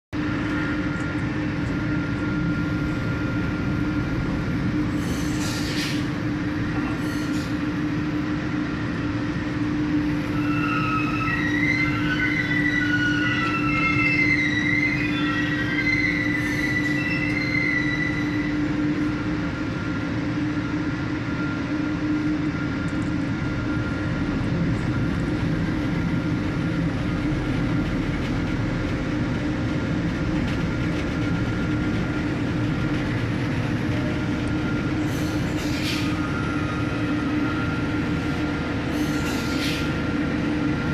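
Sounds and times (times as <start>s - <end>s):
heavy machinery humming: 0.2s - 40.9s
high metallic squealing: 10.3s - 18.6s.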